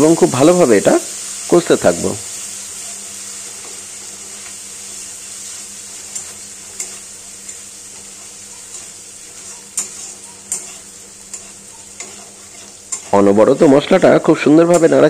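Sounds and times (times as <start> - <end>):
spice paste sizzling in oil: 0.0 - 15.0
spatula scraping a pan: 2.7 - 14.0.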